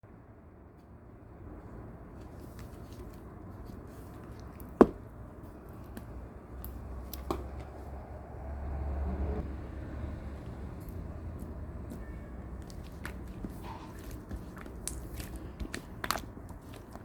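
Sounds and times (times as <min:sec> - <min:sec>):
slime clicking and popping: 0:14.0 - 0:17.0.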